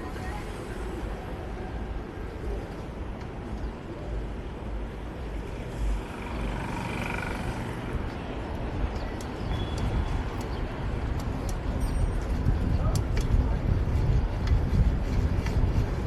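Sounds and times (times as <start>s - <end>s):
passing vehicles humming: 0.0s - 11.8s
wind buffeting microphone: 0.0s - 16.0s.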